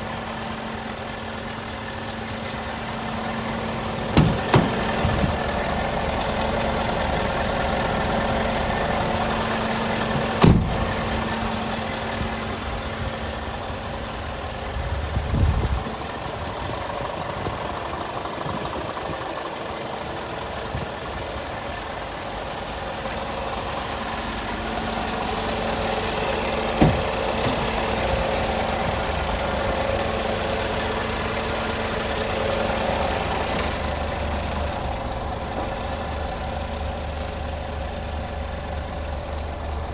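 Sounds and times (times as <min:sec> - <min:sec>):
diesel truck engine idling: 0:00.0 - 0:39.9
low thump: 0:10.4 - 0:11.0, 0:26.8 - 0:27.8.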